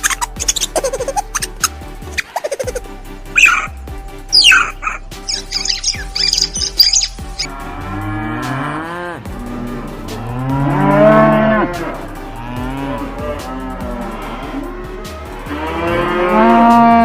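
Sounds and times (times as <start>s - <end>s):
high bird chirping: 0.0s - 2.8s, 3.4s - 7.5s
cow mooing: 7.5s - 14.6s, 15.4s - 17.0s.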